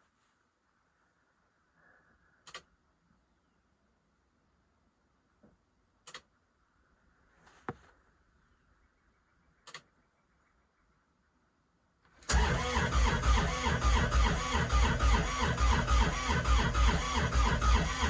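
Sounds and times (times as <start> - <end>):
faint clicks: 2.4 - 2.7, 9.6 - 9.9
starter cranking diesel engine: 12.3 - 18.0.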